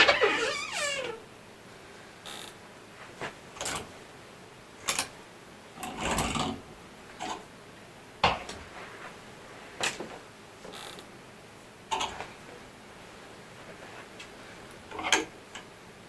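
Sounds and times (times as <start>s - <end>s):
rustling scrape: 8.6s - 9.8s, 13.6s - 14.6s.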